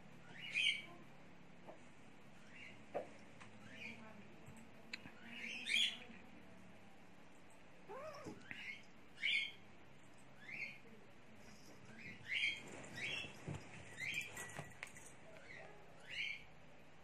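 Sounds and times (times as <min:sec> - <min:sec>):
bird chirping: 0:00.2 - 0:01.0, 0:07.9 - 0:09.6, 0:10.2 - 0:11.0.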